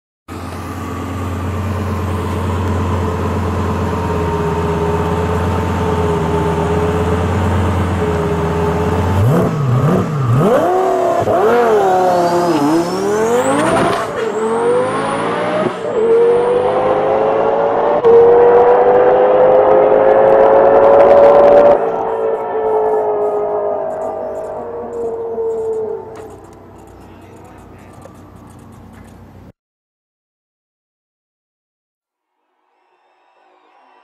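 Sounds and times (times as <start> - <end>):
car engine revving: 0.3 - 29.3
faint high whistle: 22.1 - 26.2, 32.5 - 34.0.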